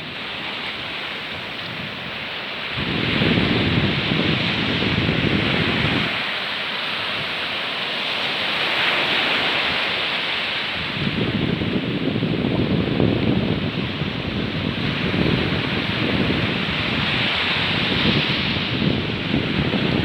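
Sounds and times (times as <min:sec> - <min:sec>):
wind buffeting microphone: 0:00.0 - 0:06.3, 0:10.6 - 0:20.0
waterfall and stream rushing: 0:00.0 - 0:11.1
surf: 0:00.0 - 0:20.0.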